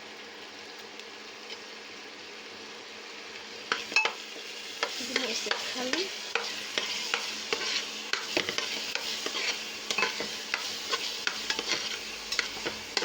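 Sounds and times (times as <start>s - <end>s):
oil sizzling in pot: 0.0s - 13.0s
spoon scraping and clicking pan: 3.7s - 4.2s, 6.3s - 13.0s.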